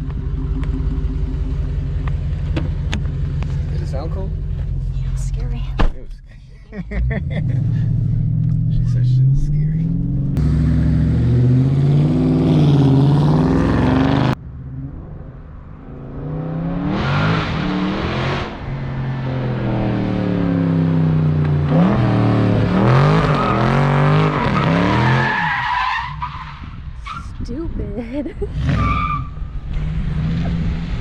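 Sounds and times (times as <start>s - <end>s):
car engine revving: 6.8s - 26.2s, 28.5s - 31.0s.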